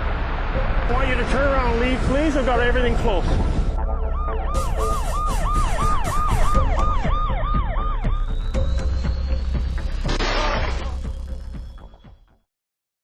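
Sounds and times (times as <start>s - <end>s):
low steady rumble: 0.0s - 4.6s
emergency siren yelping: 3.7s - 9.8s.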